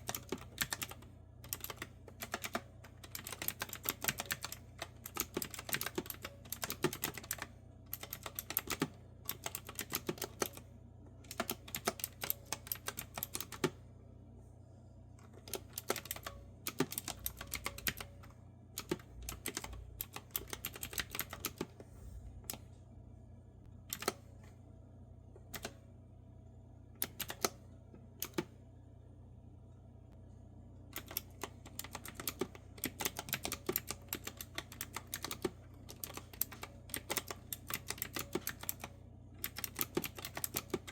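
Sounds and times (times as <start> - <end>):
clicky keyboard typing: 0.0 - 13.8, 15.3 - 21.8, 23.9 - 24.2, 25.5 - 25.8, 27.0 - 27.6, 28.2 - 28.5, 31.0 - 40.9.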